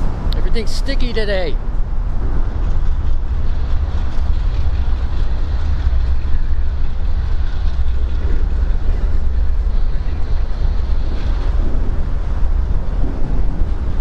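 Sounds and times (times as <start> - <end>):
heavy rain hiss: 0.0 - 14.0
wind buffeting microphone: 0.0 - 14.0.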